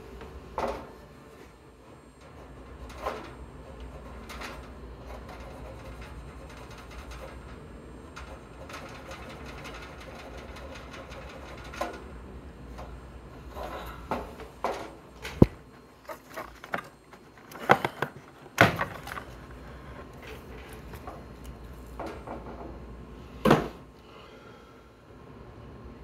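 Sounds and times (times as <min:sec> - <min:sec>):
knocks and clunks: 0:13.5 - 0:21.3.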